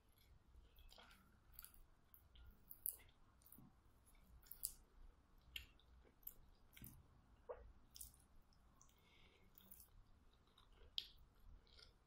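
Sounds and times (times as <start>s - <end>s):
wet mouth clicks from chewing: 8.8s - 12.0s.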